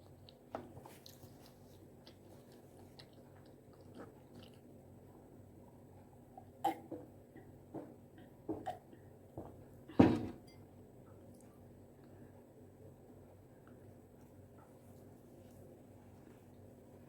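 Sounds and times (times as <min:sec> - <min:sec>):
wet chewing clicks and smacks: 0:00.0 - 0:04.8.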